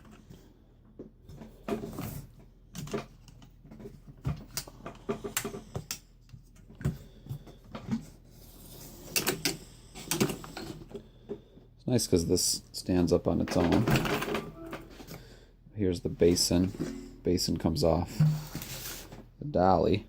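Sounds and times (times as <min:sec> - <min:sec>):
metal vacuum cleaner parts handled: 0:18.1 - 0:19.1.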